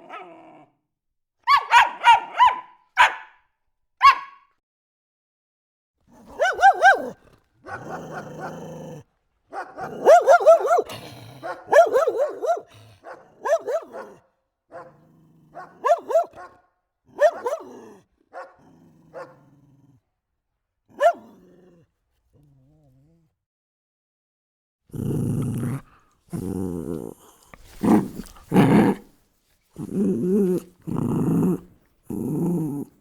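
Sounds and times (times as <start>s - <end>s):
dog yapping: 1.5s - 3.3s, 4.0s - 4.4s, 6.3s - 8.4s, 9.5s - 10.9s, 11.5s - 14.2s, 15.6s - 16.6s, 17.2s - 17.8s, 21.0s - 21.3s.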